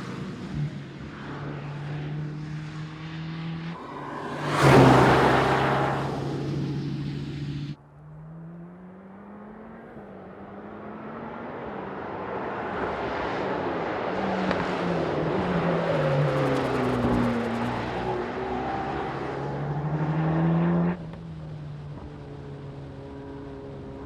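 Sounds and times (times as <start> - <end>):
car engine passing: 1.0 - 21.1
loud car engine note: 3.7 - 10.0.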